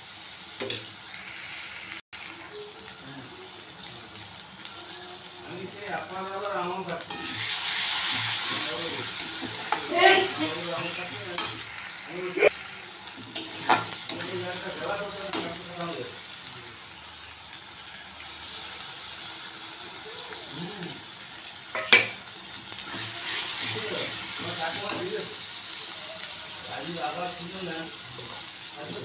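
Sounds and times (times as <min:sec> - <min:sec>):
oil sizzling in a pan: 0:00.0 - 0:29.0
metal spatula scraping a pan: 0:07.1 - 0:11.9, 0:13.2 - 0:15.6.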